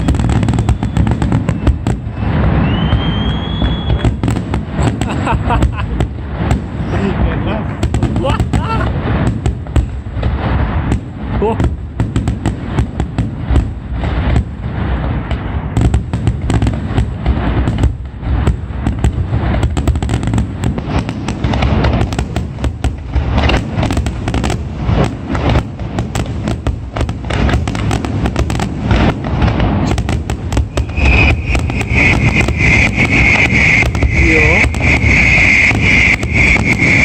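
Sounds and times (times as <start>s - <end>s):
high whistle: 0.0s - 4.2s, 30.6s - 37.0s
fireworks bangs and booms: 0.0s - 37.0s
low rumble: 28.9s - 37.0s.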